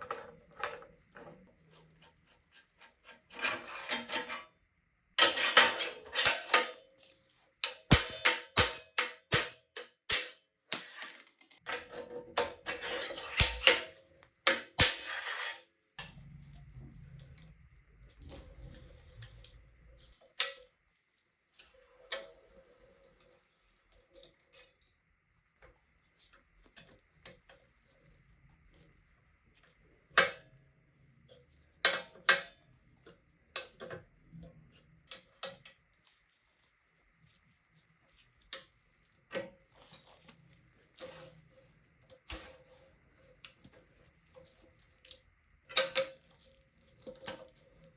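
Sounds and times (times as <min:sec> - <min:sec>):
metal tools clinking and scraping: 0:09.8 - 0:11.7.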